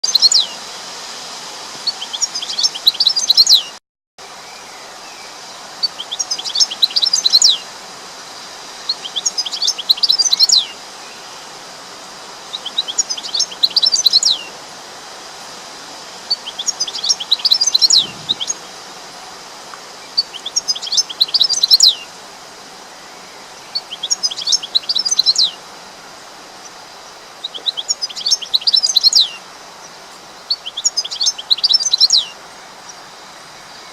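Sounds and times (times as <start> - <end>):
steady background hiss: 0.0 - 33.9
bird chirping falling phrase: 17.0 - 18.6.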